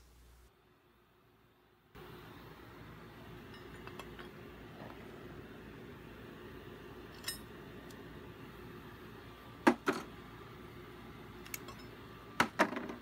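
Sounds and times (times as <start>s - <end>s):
metallic clinks of brake pads: 3.5s - 4.4s.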